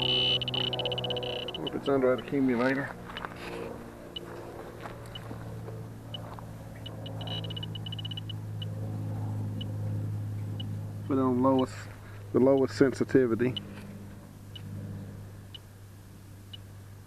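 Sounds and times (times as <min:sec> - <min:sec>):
leak detector beeping: 0:00.0 - 0:01.9, 0:04.1 - 0:04.4, 0:05.0 - 0:05.3, 0:06.1 - 0:08.8
heat pump humming: 0:00.0 - 0:17.0.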